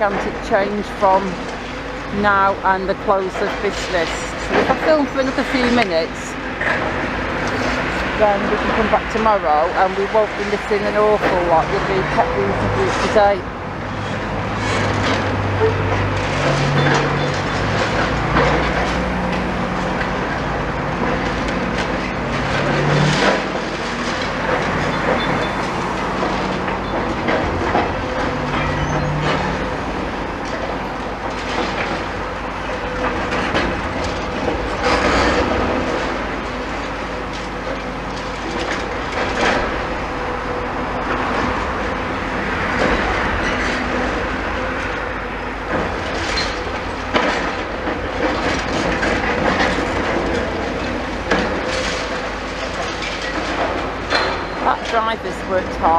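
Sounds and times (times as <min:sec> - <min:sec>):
excavator diesel engine: 0:00.0 - 0:55.9
masonry and metal crunching: 0:00.0 - 0:55.9
debris crashing: 0:04.1 - 0:55.0.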